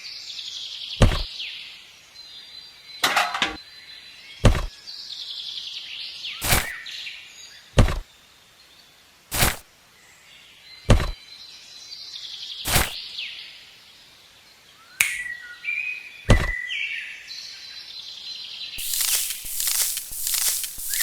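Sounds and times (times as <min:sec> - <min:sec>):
sharp knocks: 0:10.9 - 0:11.2
birds chirping: 0:18.8 - 0:21.0
rustling scuffing noise: 0:18.8 - 0:21.0.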